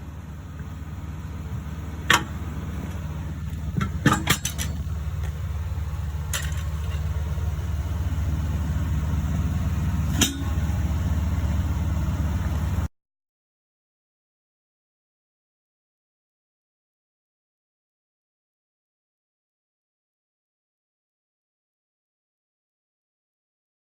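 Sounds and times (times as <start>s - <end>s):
truck engine idling: 0.0s - 12.9s
metallic clinks and clanks: 3.8s - 5.0s, 6.3s - 7.1s.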